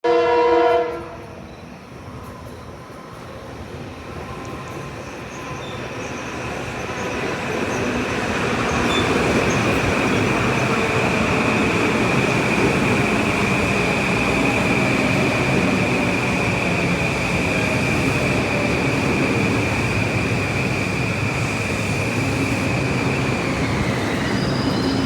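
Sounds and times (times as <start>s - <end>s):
train horn blast: 0.0s - 1.3s
high-pitched train whine: 0.0s - 25.0s
train running rumble: 2.0s - 25.0s.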